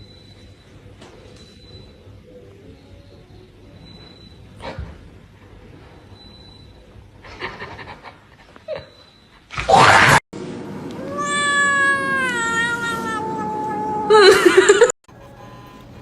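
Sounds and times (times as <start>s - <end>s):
cat yowling: 11.0s - 14.8s.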